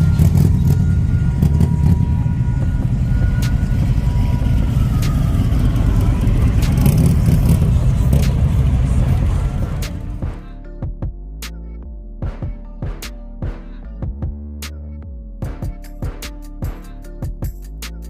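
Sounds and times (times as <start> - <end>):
car engine running: 0.0 - 10.6.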